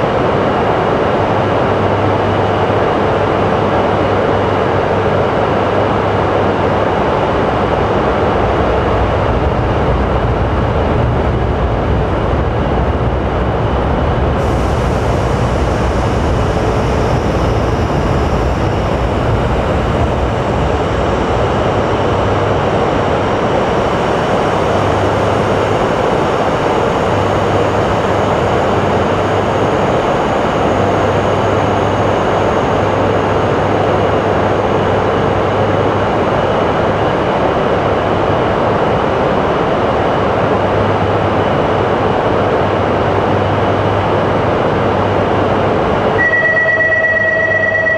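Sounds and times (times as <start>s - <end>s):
train running with low hum: 0.0s - 47.9s
faint high tone: 46.2s - 47.9s.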